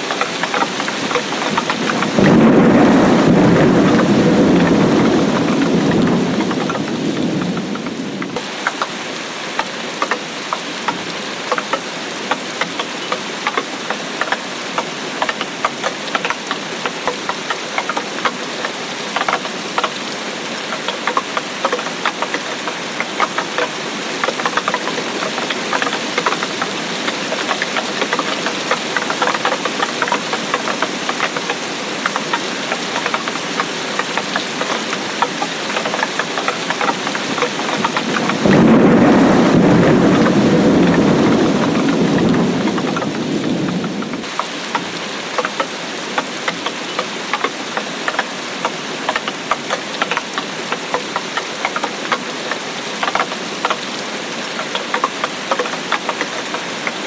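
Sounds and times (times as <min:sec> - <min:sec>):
heavy rain: 0:00.0 - 0:57.0
thunder rolling: 0:01.5 - 0:08.4, 0:36.8 - 0:44.3.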